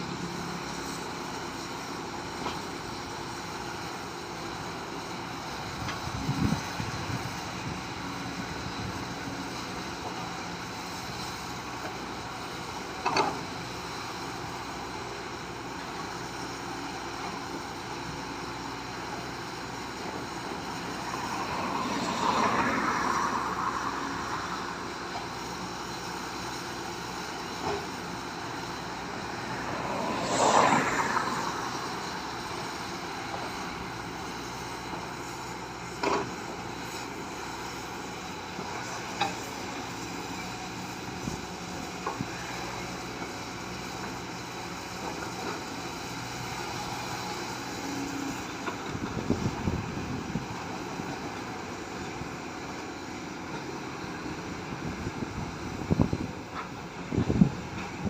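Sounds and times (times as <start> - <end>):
steady background noise: 0.0 - 58.0
vehicles passing: 14.9 - 58.0.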